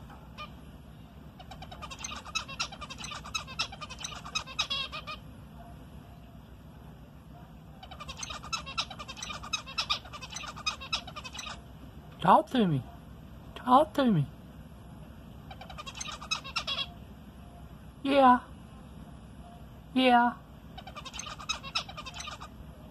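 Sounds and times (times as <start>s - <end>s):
finch singing buzzy notes: 1.4s - 5.2s, 15.5s - 17.0s, 20.8s - 22.6s.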